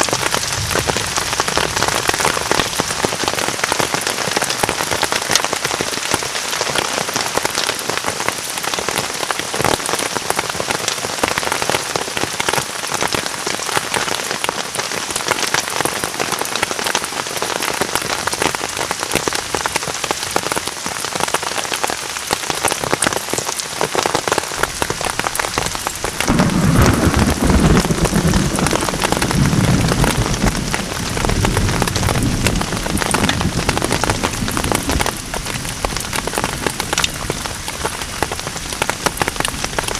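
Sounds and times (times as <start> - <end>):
thunder rumbling: 0.0 - 3.2, 24.6 - 39.9
heavy rain falling: 0.0 - 39.9.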